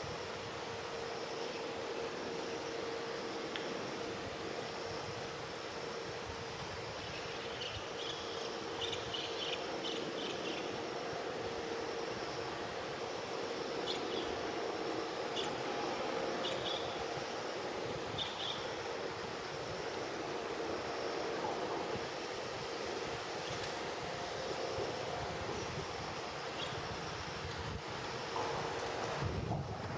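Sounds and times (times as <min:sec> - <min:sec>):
faint steady hum: 0:00.0 - 0:29.9
strong wind: 0:13.9 - 0:29.9.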